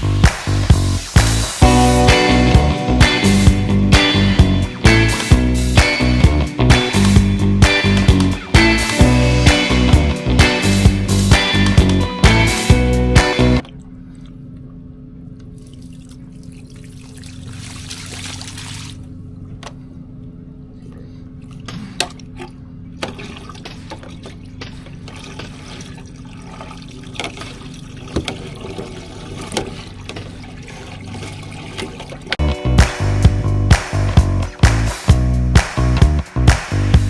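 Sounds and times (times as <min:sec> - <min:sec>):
steady mechanical hum: 0:13.6 - 0:32.4
liquid running and trickling: 0:15.5 - 0:19.1, 0:22.2 - 0:32.4.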